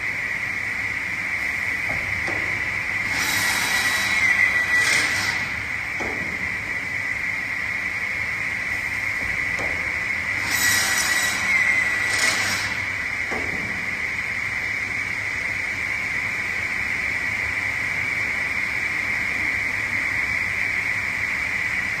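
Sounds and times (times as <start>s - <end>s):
saw machine whining: 2.4s - 9.0s, 9.9s - 14.3s.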